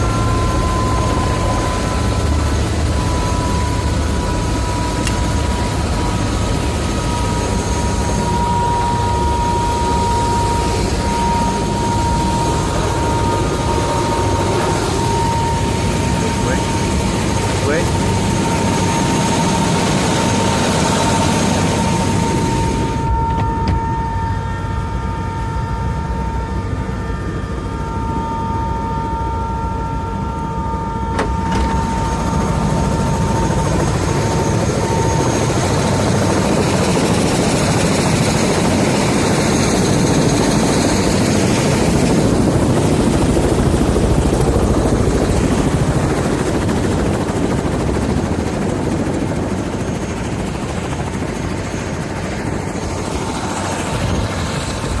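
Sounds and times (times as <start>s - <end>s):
helicopter running: 0.0s - 55.0s
high turbine whine: 0.0s - 55.0s.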